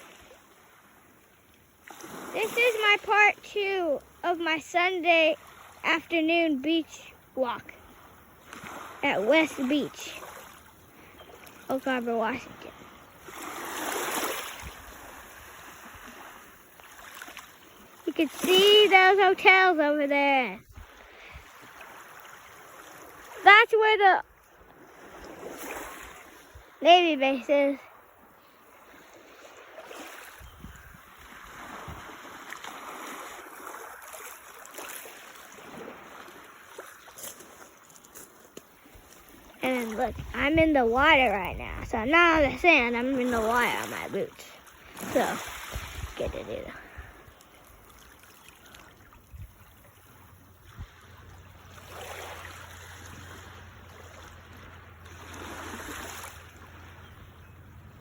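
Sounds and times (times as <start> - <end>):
seawater sloshing: 0.0 - 58.0
small waves lapping on shore: 0.0 - 58.0.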